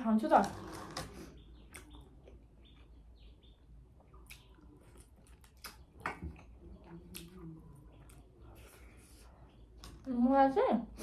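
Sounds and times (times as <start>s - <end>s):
faint bird chirps: 1.1s - 5.1s
person chewing with mouth smacks: 1.6s - 3.0s, 3.9s - 9.6s.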